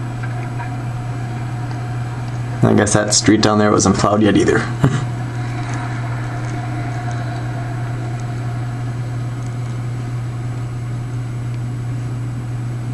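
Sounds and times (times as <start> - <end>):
low mechanical hum: 0.0 - 12.9
faint high tone: 5.1 - 11.0.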